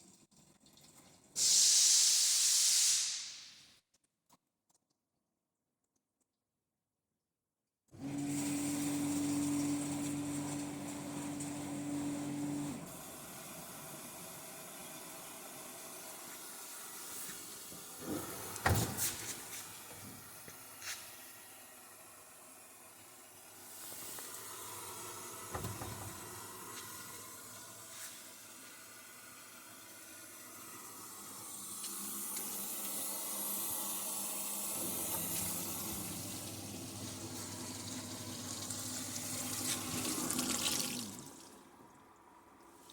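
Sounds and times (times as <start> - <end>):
dishwasher motor hum: 8.0 - 16.6, 17.6 - 20.4, 23.3 - 41.5
water spraying inside machine: 31.9 - 41.5.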